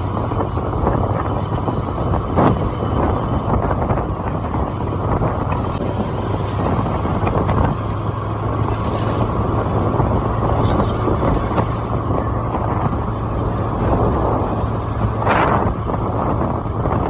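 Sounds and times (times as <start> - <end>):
motorcycle engine drone: 0.0 - 17.0
wind buffeting microphone: 0.0 - 17.0.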